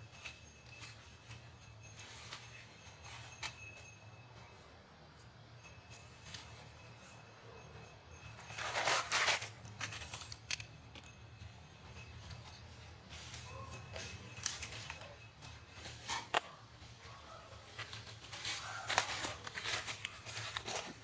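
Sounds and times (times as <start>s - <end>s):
rustling and crackling: 11.9s - 21.0s.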